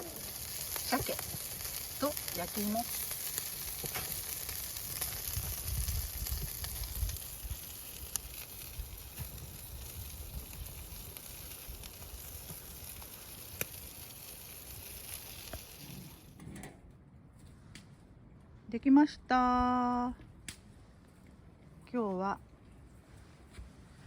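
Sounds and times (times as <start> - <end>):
campfire crackles: 0.0 - 16.4
fish sizzling on grill: 0.0 - 16.4.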